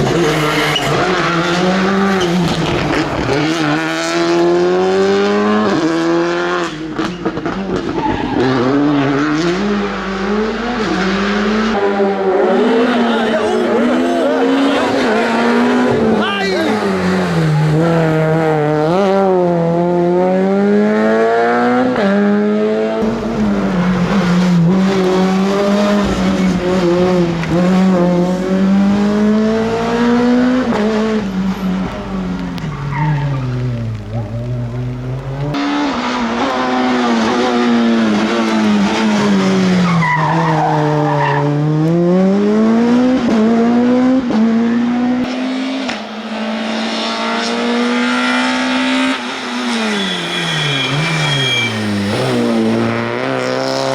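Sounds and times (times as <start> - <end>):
rally car engines revving: 0.0 - 53.9
tyre squeal: 48.8 - 53.3.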